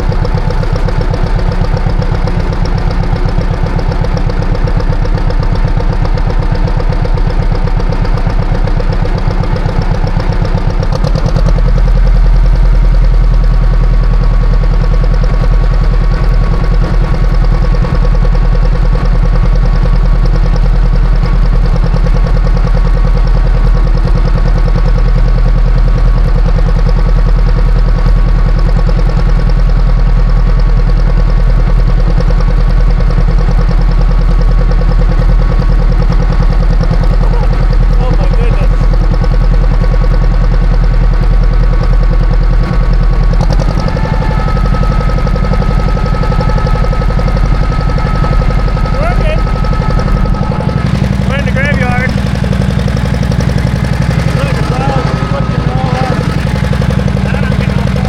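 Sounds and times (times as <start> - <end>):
tractor engine running: 0.0 - 58.0
steady higher tone: 42.8 - 58.0.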